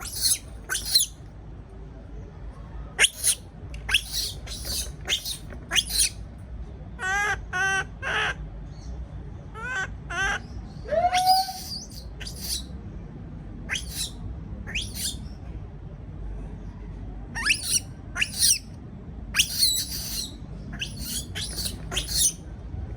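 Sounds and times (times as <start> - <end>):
baby monkey high-pitched cries: 0.0 - 1.2, 3.0 - 6.2, 9.6 - 12.7, 13.7 - 15.3, 17.4 - 18.7, 19.4 - 22.4.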